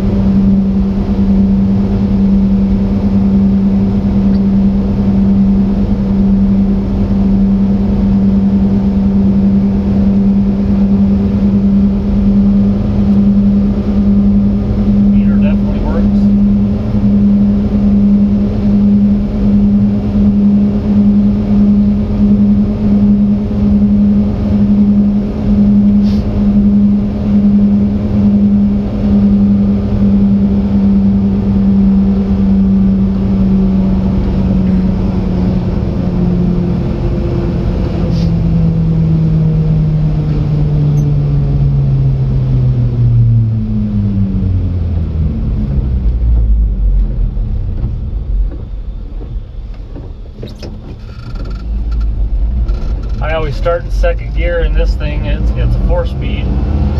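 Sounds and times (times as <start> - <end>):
mini truck engine driving: 0.0 - 56.9.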